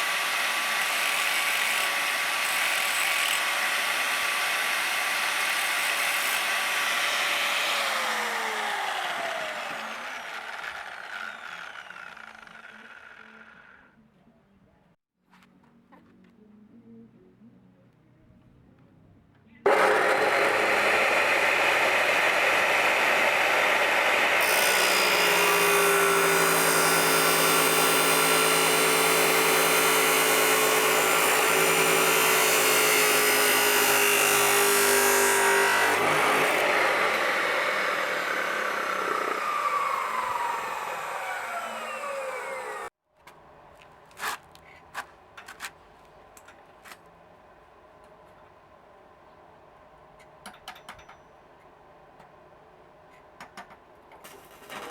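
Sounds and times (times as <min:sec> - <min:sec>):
power tool running and whining: 0:00.0 - 0:13.8, 0:19.7 - 0:43.0.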